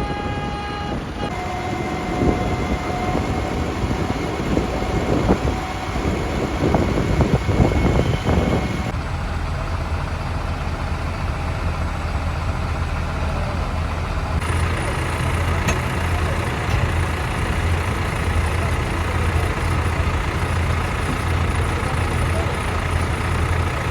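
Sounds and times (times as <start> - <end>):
tractor engines idling: 1.0 - 23.9.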